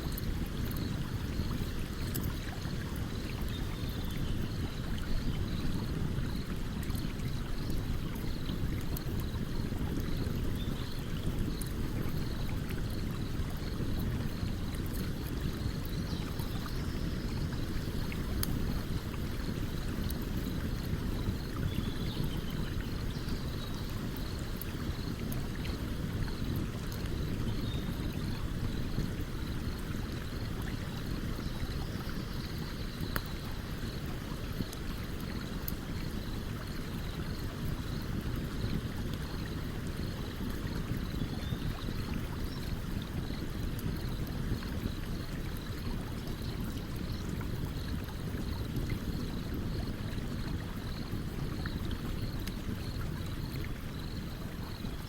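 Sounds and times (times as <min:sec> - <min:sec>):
campfire crackling: 0:17.4 - 0:21.6.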